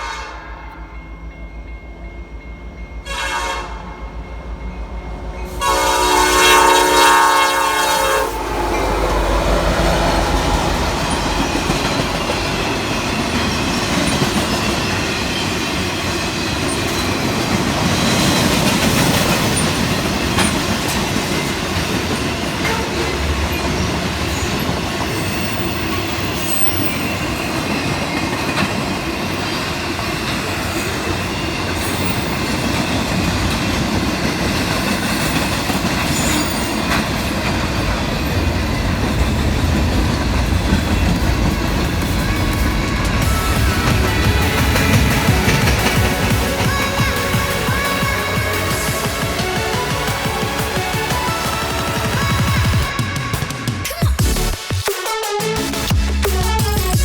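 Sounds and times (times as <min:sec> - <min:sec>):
locomotive air horn: 0:00.0 - 0:00.8, 0:03.0 - 0:04.1, 0:05.5 - 0:13.4, 0:22.6 - 0:23.4, 0:42.2 - 0:53.4
train wheels rumbling and clattering: 0:00.8 - 0:54.5.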